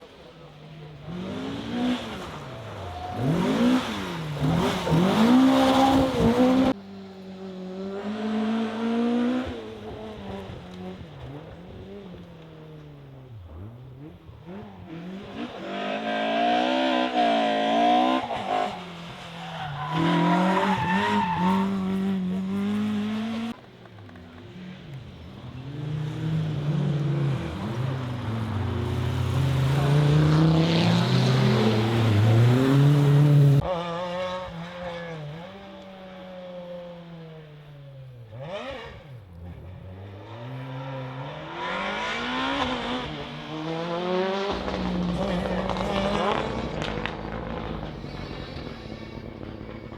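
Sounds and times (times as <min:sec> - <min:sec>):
rally car engines revving: 0:00.0 - 0:49.9
car passing by: 0:24.5 - 0:33.7.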